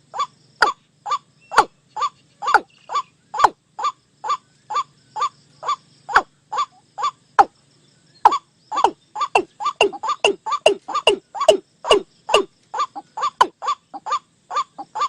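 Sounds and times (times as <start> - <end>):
waterhen calling kwak: 0.1 - 7.5, 8.2 - 15.0.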